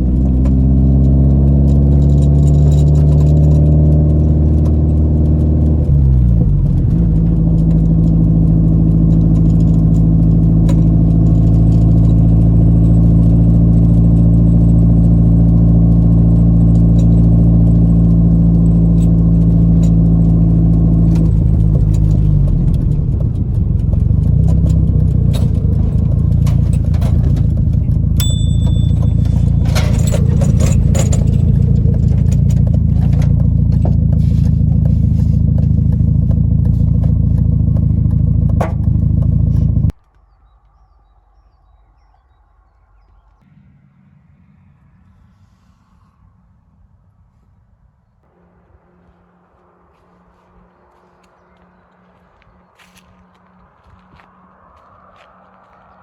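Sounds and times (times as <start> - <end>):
car engine running: 0.0 - 41.0, 48.1 - 56.0
clattering: 0.1 - 40.0.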